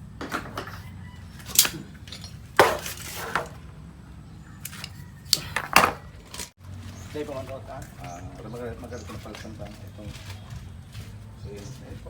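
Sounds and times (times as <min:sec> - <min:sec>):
metal tools clinking: 0:00.2 - 0:03.6.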